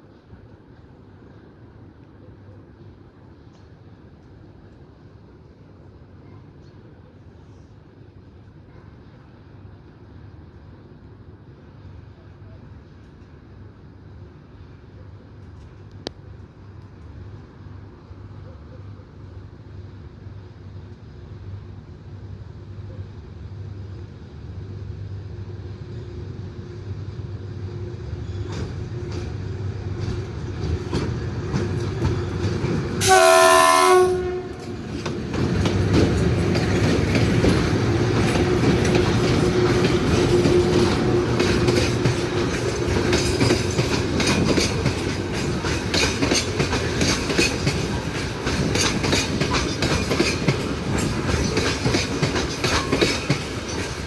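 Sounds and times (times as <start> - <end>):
steady train hum: 0.0 - 54.0
train rumble: 8.3 - 54.0
train horn blast: 33.0 - 35.0
wheels clattering over rail joints: 34.6 - 54.0.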